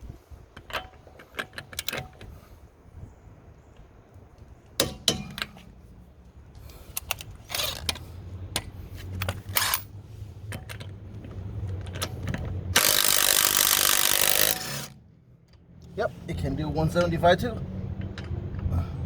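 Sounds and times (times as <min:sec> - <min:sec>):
impact driver hammering: 0:04.8 - 0:05.5, 0:12.8 - 0:15.0
tool clicks and ratchet rattles: 0:06.9 - 0:08.1, 0:09.1 - 0:11.0, 0:11.6 - 0:15.6.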